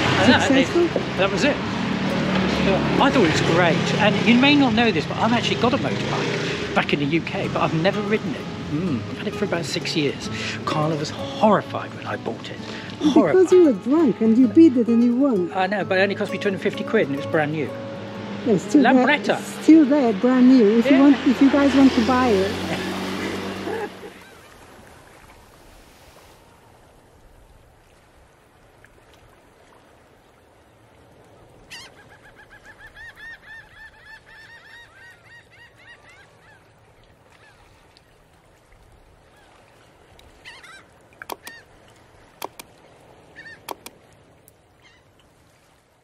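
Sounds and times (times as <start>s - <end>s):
bird honking calls: 16.8s - 24.6s, 31.7s - 36.7s, 40.4s - 41.8s, 43.3s - 43.9s
sharp clicks: 41.2s - 41.6s, 42.4s - 42.7s, 43.6s - 44.0s.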